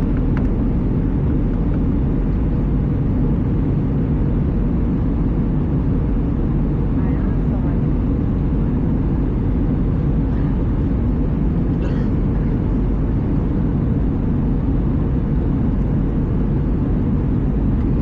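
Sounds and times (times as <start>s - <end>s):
airplane cabin rumble: 0.0s - 18.0s.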